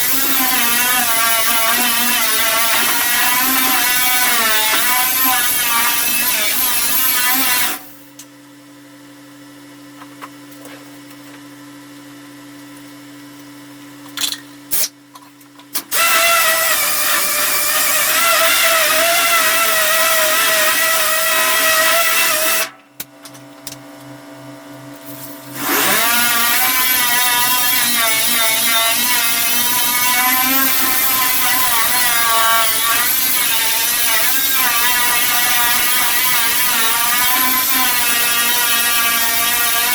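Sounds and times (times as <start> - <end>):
power tool whining: 0.0 - 7.9, 15.8 - 22.8, 25.1 - 39.9.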